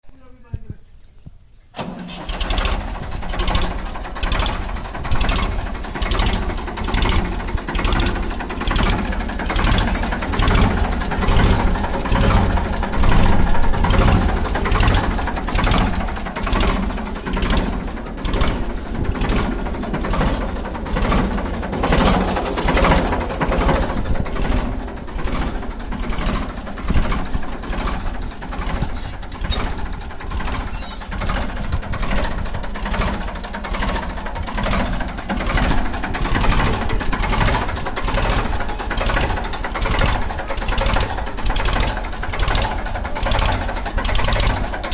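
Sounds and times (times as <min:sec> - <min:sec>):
tractor engine running: 0:01.6 - 0:44.9.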